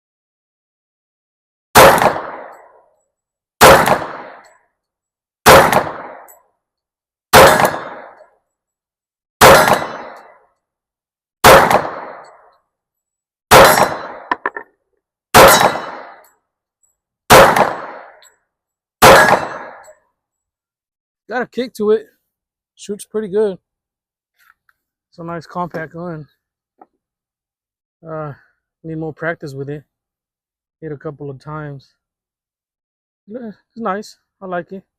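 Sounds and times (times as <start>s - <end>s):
pistol shots with echo: 1.8s - 2.8s, 3.6s - 4.6s, 5.4s - 6.3s, 7.3s - 8.3s, 9.4s - 10.4s, 11.4s - 12.4s, 13.5s - 14.4s, 15.3s - 16.2s, 17.3s - 18.2s, 19.0s - 19.9s.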